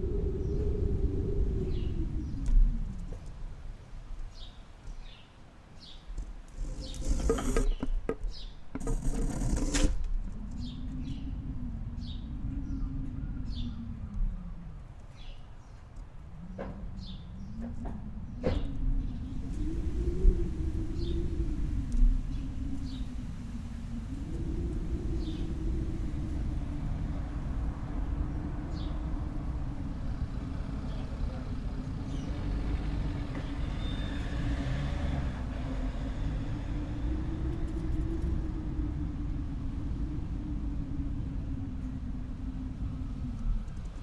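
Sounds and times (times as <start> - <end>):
engine rumble: 0.0 - 44.0
faint bird chirps: 10.4 - 24.2.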